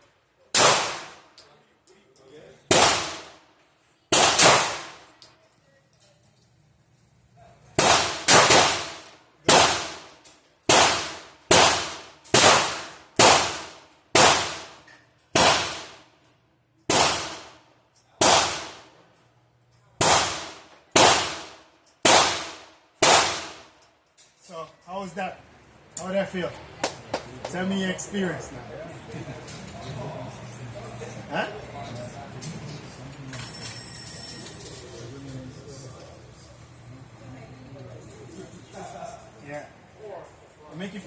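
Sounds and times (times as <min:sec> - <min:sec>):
handgun shots: 0:00.5 - 0:01.2, 0:02.7 - 0:03.3, 0:04.1 - 0:05.1, 0:07.8 - 0:10.1, 0:10.7 - 0:14.7, 0:15.4 - 0:16.0, 0:16.9 - 0:17.6, 0:18.2 - 0:18.8, 0:20.0 - 0:23.6.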